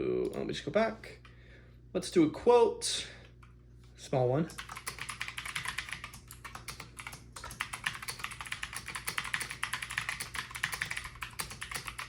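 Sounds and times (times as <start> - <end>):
mechanical keyboard typing: 4.5 - 12.0.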